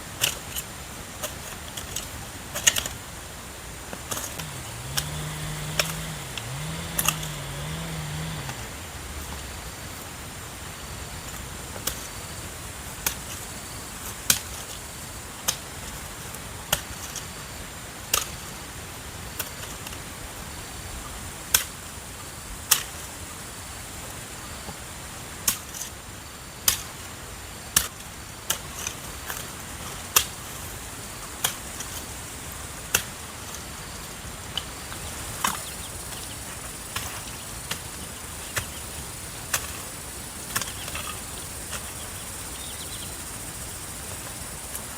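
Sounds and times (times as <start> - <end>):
steady hiss: 34.6 - 44.9.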